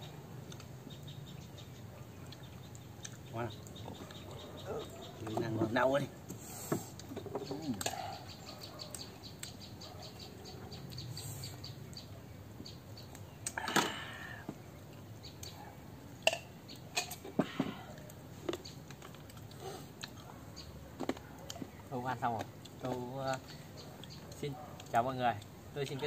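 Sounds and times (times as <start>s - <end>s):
faint bird chirps: 0.0s - 15.9s.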